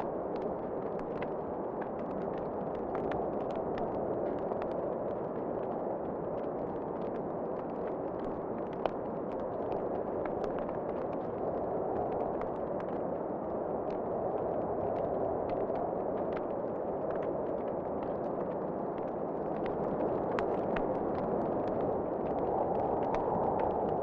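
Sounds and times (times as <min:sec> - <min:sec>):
wood fire crackling: 0:07.9 - 0:24.0.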